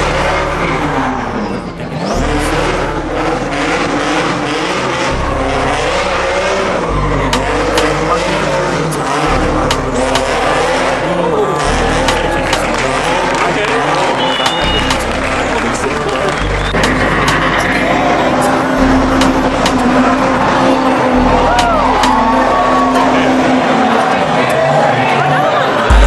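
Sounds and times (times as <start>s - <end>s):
car engine revving: 0.0s - 26.0s
tire squeal: 5.7s - 25.5s.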